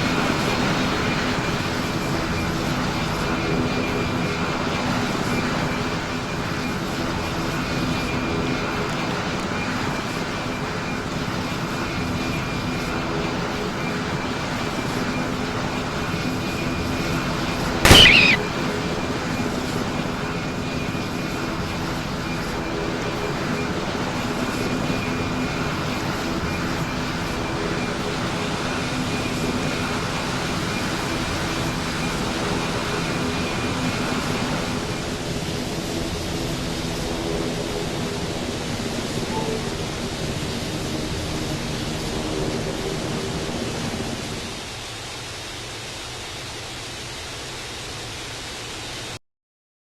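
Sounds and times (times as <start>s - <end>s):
short sharp loud bang: 17.9s - 18.4s.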